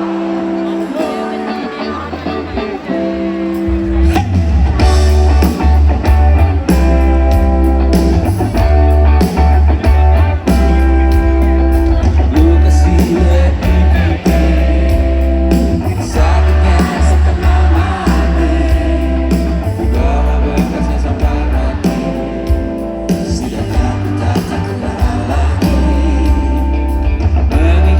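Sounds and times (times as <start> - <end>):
live rock band playing: 0.0 - 27.9
heavy booming bass: 3.8 - 27.9
person singing: 11.8 - 27.9.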